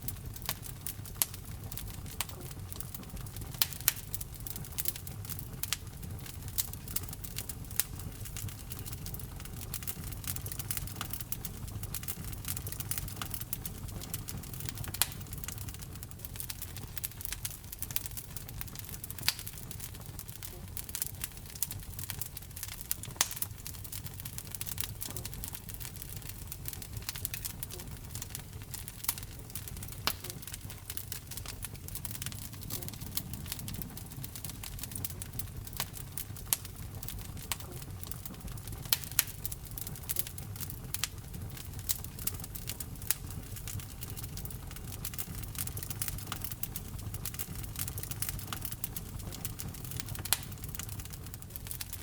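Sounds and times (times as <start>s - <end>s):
low rumble of flames: 0.0s - 52.0s
wood fire crackling and popping: 0.0s - 52.0s.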